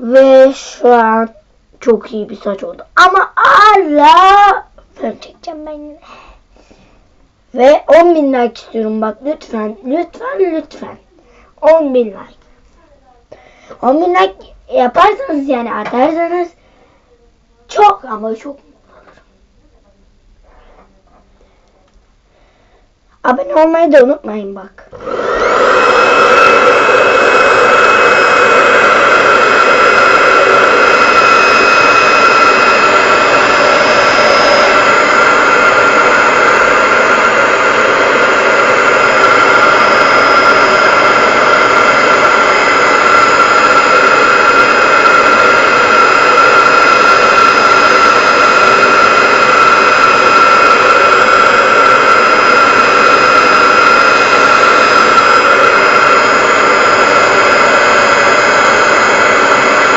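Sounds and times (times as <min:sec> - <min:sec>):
hair dryer running: 0:24.9 - 0:59.9.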